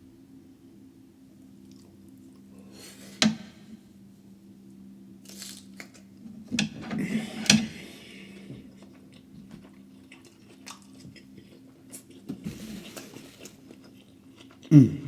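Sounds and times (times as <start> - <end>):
faint low hum: 0.0 - 15.0
crackling rustling of food: 5.2 - 14.8.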